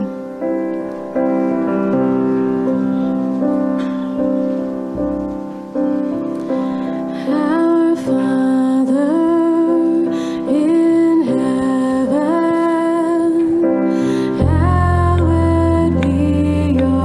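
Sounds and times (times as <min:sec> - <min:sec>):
person singing slow melody: 0:00.0 - 0:00.8, 0:06.4 - 0:17.0
keyboard sustained chords: 0:00.0 - 0:17.0.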